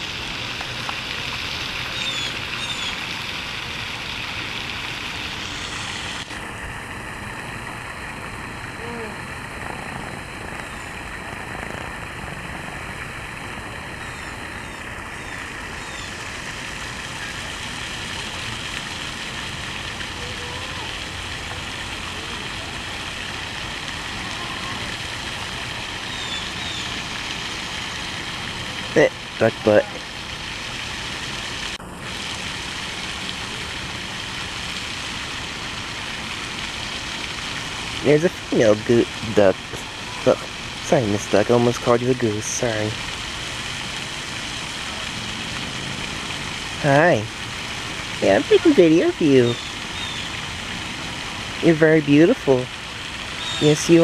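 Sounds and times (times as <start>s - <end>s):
steady outdoor background noise: 0.0s - 54.0s
small birds chirping: 1.9s - 3.0s.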